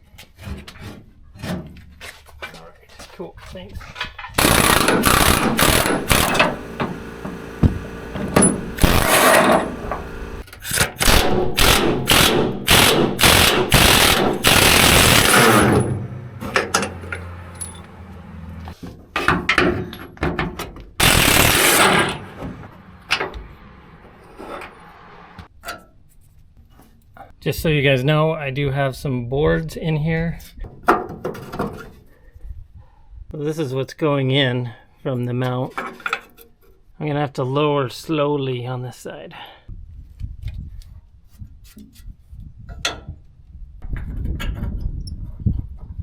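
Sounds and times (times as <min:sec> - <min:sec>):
impact wrench hammering: 0:04.4 - 0:17.9, 0:21.0 - 0:23.4.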